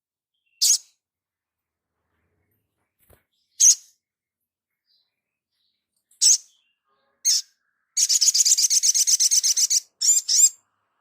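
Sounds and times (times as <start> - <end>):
sunbird singing high trill: 4.9 - 10.7.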